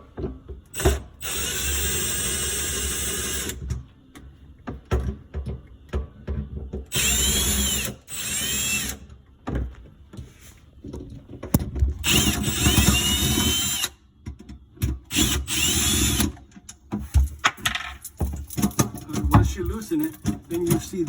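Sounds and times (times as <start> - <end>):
power drill motor whine: 0.8 - 3.6, 6.9 - 9.1, 12.0 - 14.0, 15.1 - 16.4.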